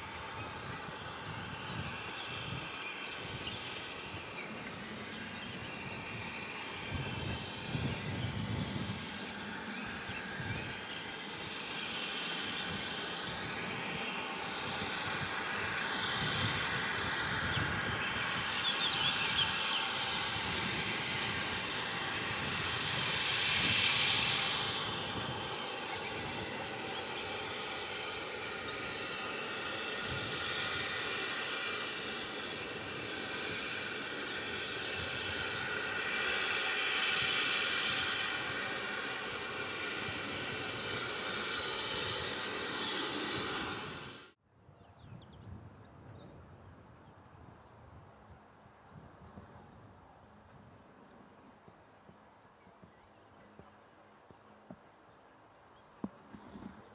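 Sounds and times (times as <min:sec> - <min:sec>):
train running past: 0:00.0 - 0:44.4.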